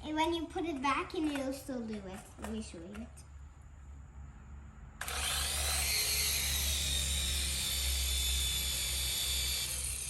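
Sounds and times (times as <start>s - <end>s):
toy drone motors whining: 5.0s - 10.0s.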